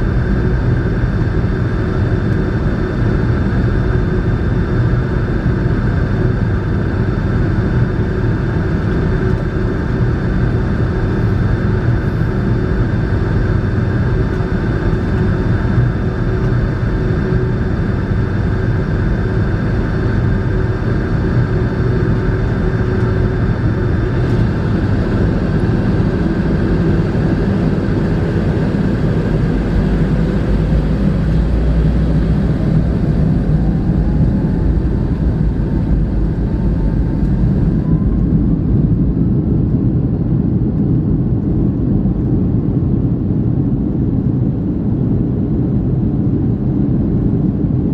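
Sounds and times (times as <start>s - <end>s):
jet engines and airflow rumble: 0.0s - 47.9s.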